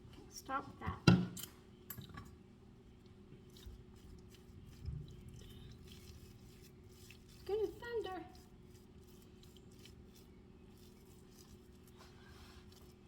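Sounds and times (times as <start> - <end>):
spoon squishing mashed potatoes: 3.1 - 13.0.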